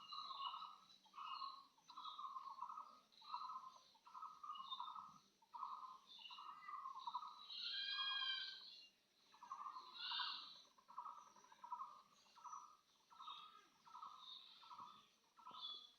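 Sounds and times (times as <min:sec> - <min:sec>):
birds calling rapid pulsed calls: 0:00.0 - 0:08.7, 0:09.3 - 0:15.9.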